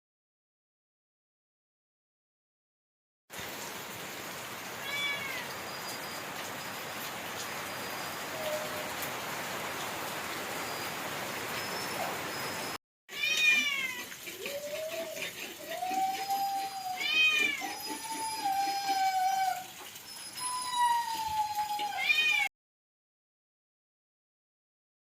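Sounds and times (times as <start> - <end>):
cat meowing: 4.8 - 5.6, 13.1 - 14.0, 15.8 - 19.6, 20.9 - 22.5.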